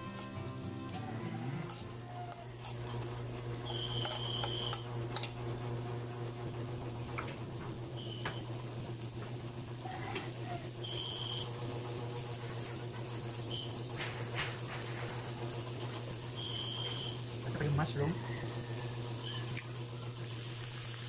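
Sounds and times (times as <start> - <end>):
carrots sizzling in a wok: 0.0 - 21.0
spoon scraping a wok: 1.4 - 5.3.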